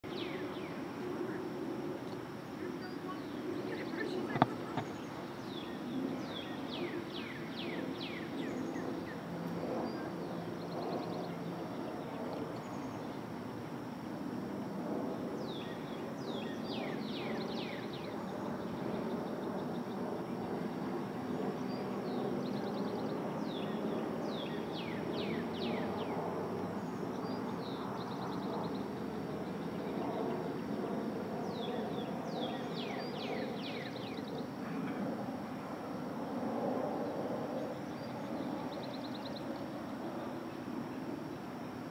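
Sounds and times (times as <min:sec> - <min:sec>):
bird singing whistled notes: 0:31.4 - 0:34.4.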